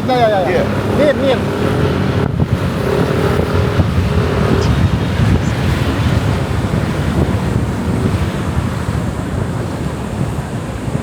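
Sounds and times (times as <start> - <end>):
motorcycle and road noise: 0.0 - 11.0
wind buffeting microphone: 0.0 - 11.0.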